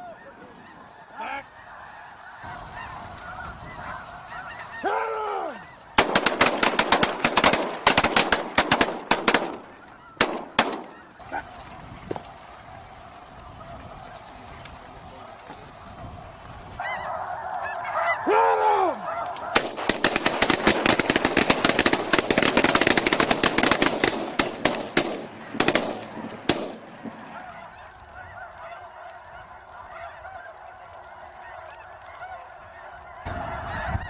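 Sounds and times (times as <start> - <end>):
geese honking: 0.0 - 34.0
shotgun cracks: 6.0 - 11.0, 19.6 - 27.1.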